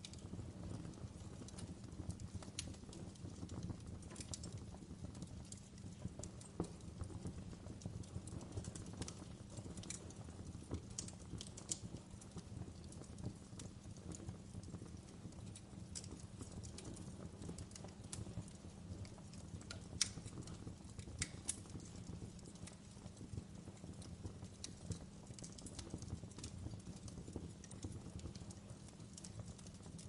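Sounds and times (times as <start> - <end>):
firewood crackles and pops: 0.0 - 30.0
low rumble of flames: 0.0 - 30.0.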